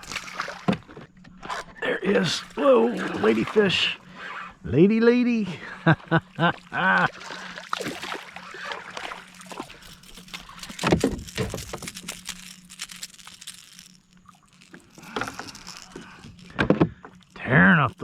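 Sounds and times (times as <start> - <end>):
water sloshing against kayak: 0.0 - 18.0.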